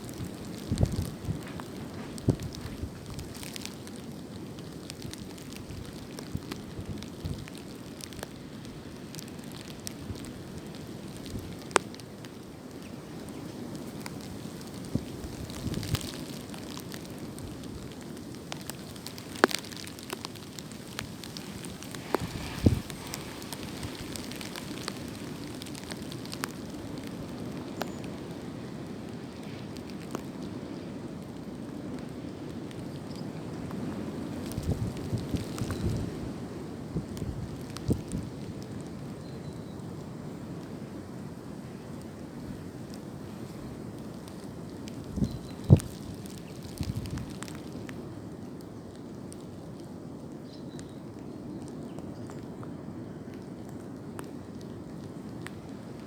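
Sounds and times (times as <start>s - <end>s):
wind through tree branches: 0.0s - 56.0s
crackling ticks: 13.2s - 28.4s, 42.9s - 48.0s.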